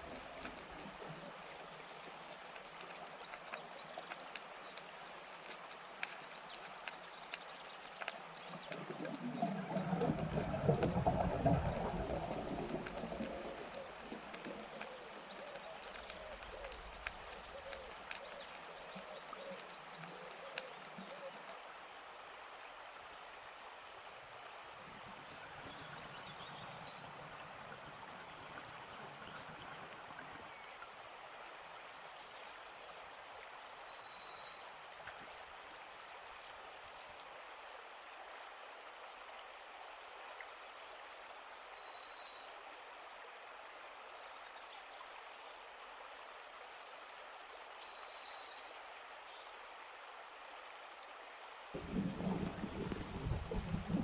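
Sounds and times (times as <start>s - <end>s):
steady background hiss: 0.0s - 54.0s
small birds chirping: 12.7s - 21.3s.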